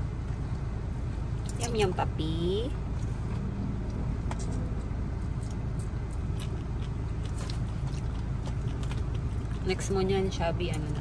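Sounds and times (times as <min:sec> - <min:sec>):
car engine idling: 0:00.0 - 0:11.0
dog chewing clicks: 0:05.4 - 0:11.0.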